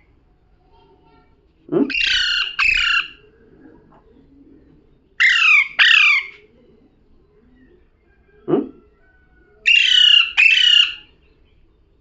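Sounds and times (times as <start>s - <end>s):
parrot harsh calls: 1.8s - 3.2s, 5.2s - 6.4s, 9.6s - 11.1s.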